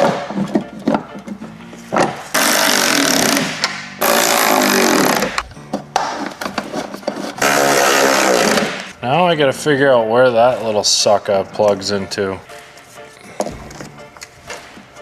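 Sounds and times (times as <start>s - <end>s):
power tool driving fasteners: 2.3s - 5.6s, 7.4s - 8.9s.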